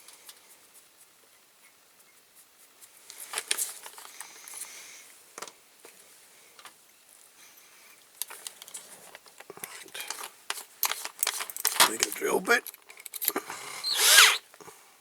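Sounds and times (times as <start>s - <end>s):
small metal parts clattering: 10.0s - 13.4s.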